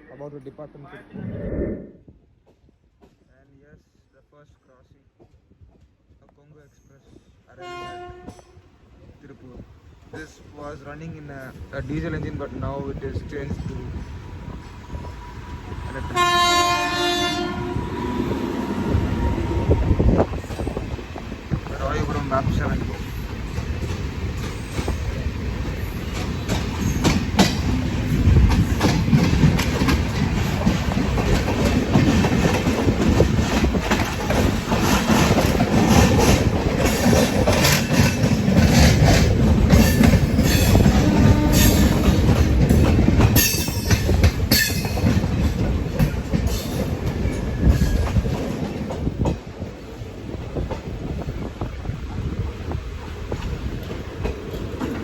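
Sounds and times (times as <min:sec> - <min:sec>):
train rumble: 0:04.8 - 0:55.0
train wheels clattering over rail joints: 0:20.2 - 0:49.8, 0:53.2 - 0:55.0.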